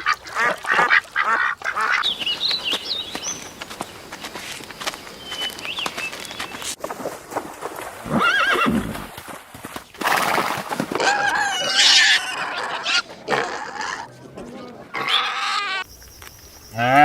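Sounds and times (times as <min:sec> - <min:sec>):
hooves clopping: 0:02.0 - 0:11.0
horse whinnying: 0:08.0 - 0:09.1, 0:11.0 - 0:14.1.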